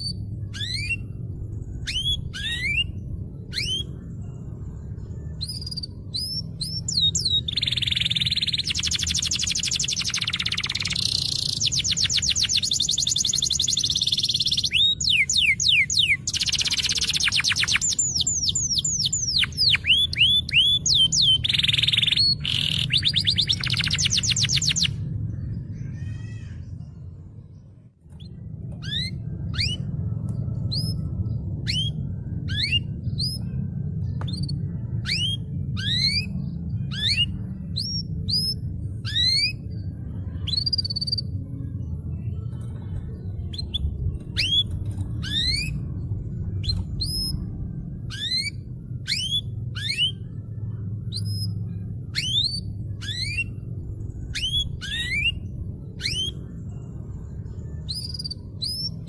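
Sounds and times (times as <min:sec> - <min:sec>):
canary singing: 0:00.0 - 0:27.1, 0:28.1 - 0:41.4, 0:42.6 - 0:59.0
steady low rumble: 0:00.0 - 0:59.0.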